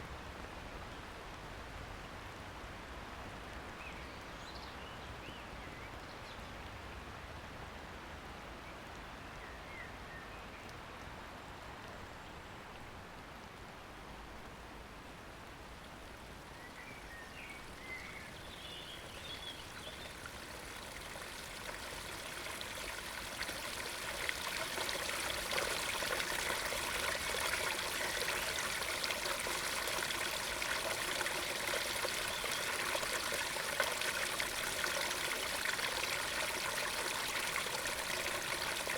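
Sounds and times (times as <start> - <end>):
stream rushing into pond: 14.8 - 38.9.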